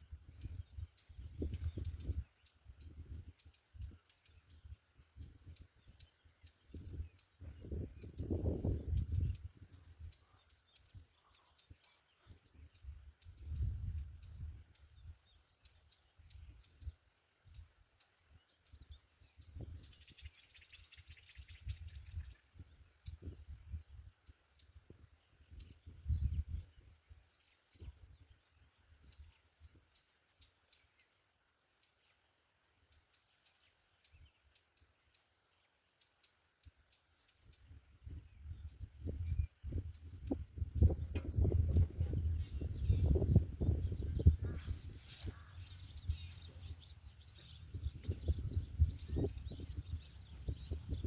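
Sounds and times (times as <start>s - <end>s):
wind on microphone: 0.0s - 11.1s, 11.7s - 15.4s, 18.8s - 24.2s, 24.8s - 29.8s, 37.5s - 51.0s
small birds chirping: 0.0s - 51.0s.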